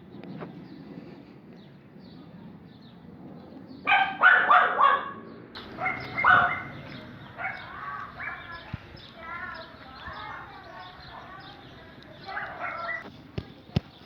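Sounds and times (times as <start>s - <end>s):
dog barking: 3.9s - 8.6s, 12.2s - 13.0s.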